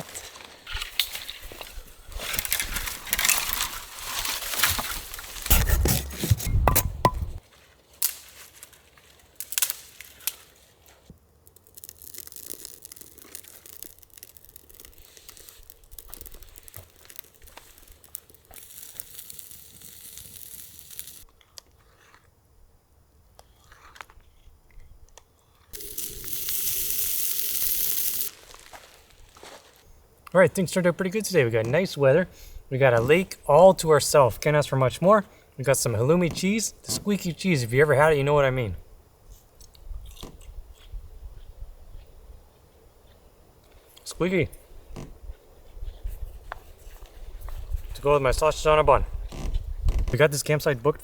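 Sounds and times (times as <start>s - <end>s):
rustling: 0.0s - 22.2s, 25.6s - 30.0s
dry wood snapping and cracking: 0.1s - 6.9s, 8.0s - 21.6s
steady hiss: 11.6s - 21.3s, 25.8s - 39.6s.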